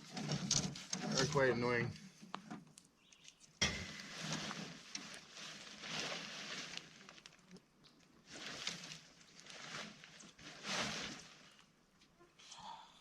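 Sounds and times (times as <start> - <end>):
nylon tent rustling: 3.8 - 7.6, 8.2 - 11.8.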